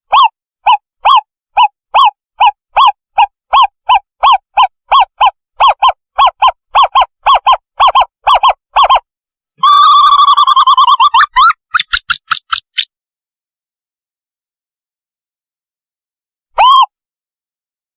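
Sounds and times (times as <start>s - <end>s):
owlet whistled hoots: 0.1s - 9.0s, 9.6s - 11.9s
rapid owlet trill: 0.1s - 9.0s, 9.6s - 12.9s.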